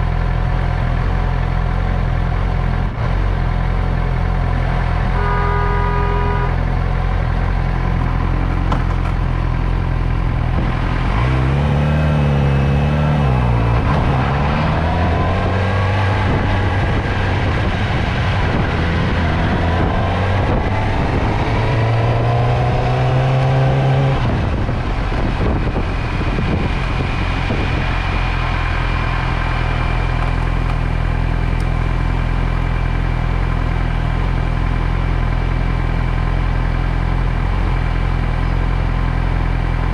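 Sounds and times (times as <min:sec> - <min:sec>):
motorcycle engine idling and pulling away: 0:06.6 - 0:22.0, 0:24.5 - 0:39.9.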